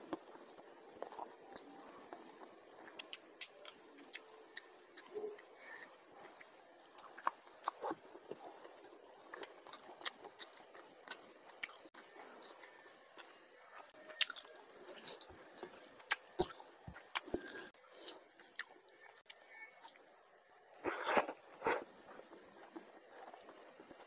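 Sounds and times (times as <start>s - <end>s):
person chewing and lip-smacking: 0.1s - 5.5s, 6.3s - 13.3s, 14.1s - 20.0s.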